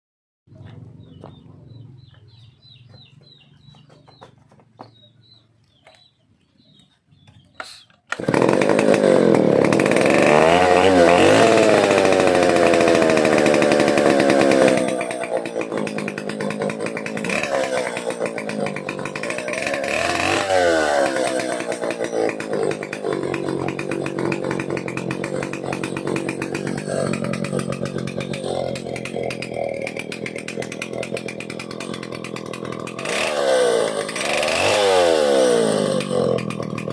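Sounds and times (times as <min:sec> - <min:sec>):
chainsaw running: 0:08.1 - 0:36.9.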